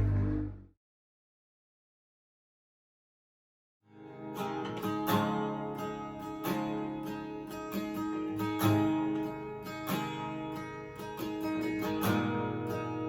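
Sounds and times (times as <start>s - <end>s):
acoustic guitar strumming: 3.9s - 13.0s.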